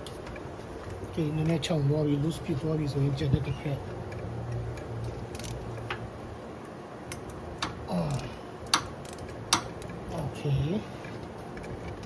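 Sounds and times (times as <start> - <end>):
metallic clicks of hand tools: 7.1 - 10.0.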